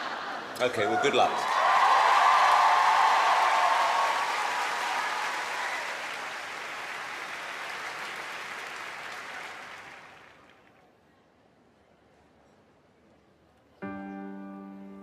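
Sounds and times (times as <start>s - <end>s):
audience applause: 0.6s - 10.8s.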